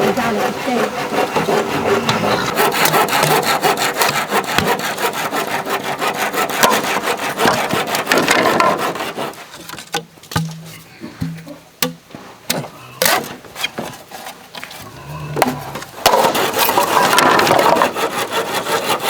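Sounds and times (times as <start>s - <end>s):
saw cutting bamboo: 0.0s - 10.5s, 11.8s - 19.0s
knocks: 1.4s - 4.8s.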